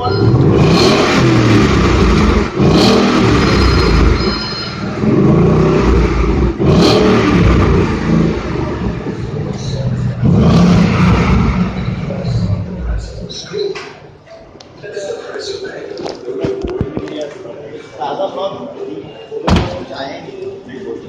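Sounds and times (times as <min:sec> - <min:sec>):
car engine revving: 0:00.0 - 0:13.3.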